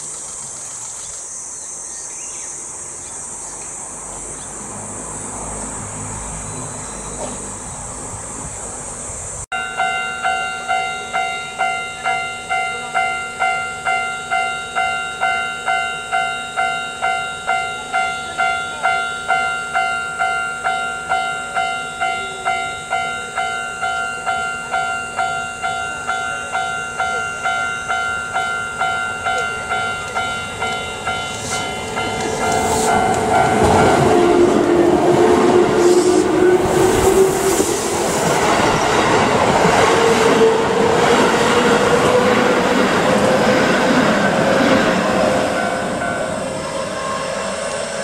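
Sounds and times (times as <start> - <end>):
level crossing warning bell: 9.5 - 35.0, 45.1 - 47.2.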